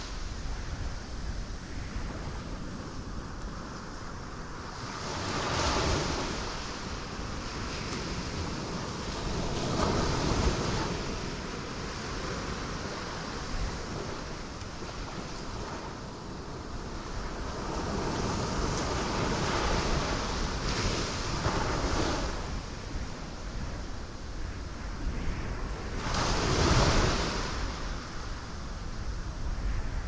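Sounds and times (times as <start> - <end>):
wind-like rush: 0.0 - 30.0.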